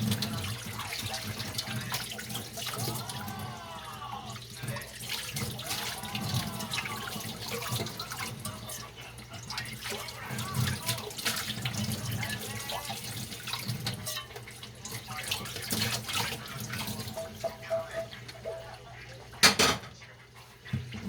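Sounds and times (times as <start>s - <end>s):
tap water running and splashing: 0.0s - 19.6s, 20.5s - 21.0s
dishes clinking and knocking: 16.8s - 18.8s, 19.4s - 20.0s.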